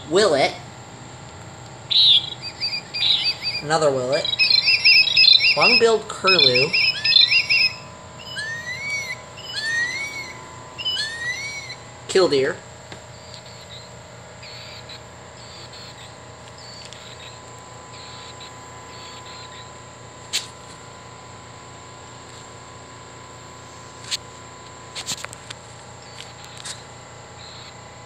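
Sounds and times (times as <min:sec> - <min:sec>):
toy bird call through speaker: 0:01.9 - 0:11.8, 0:13.2 - 0:17.4, 0:18.0 - 0:19.7.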